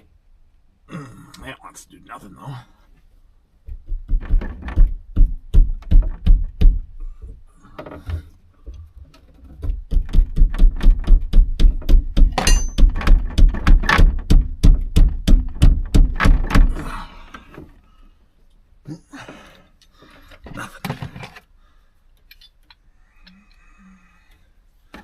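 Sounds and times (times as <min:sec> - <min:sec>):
rhythmic knocking on truck cab: 0:03.7 - 0:06.9, 0:09.9 - 0:16.7.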